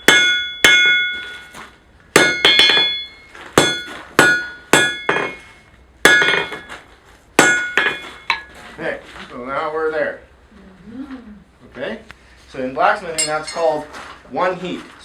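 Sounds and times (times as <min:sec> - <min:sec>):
hammer striking steel anvil: 0:00.0 - 0:01.6, 0:02.2 - 0:06.7, 0:07.4 - 0:08.5, 0:13.2 - 0:13.7.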